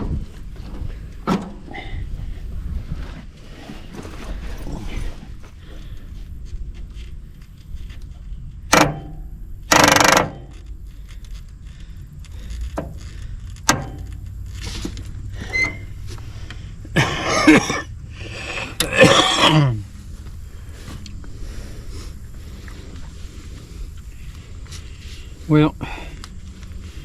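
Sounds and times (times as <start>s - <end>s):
metallic clicks and clunks: 8.6s - 16.6s
rough mechanical bursts: 8.7s - 16.1s.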